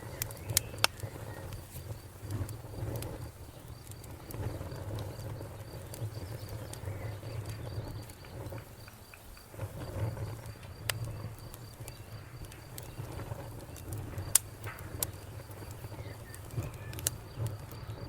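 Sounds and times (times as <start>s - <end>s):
burning wood crackles: 0.0s - 18.0s
fire flames rumbling: 0.0s - 18.0s.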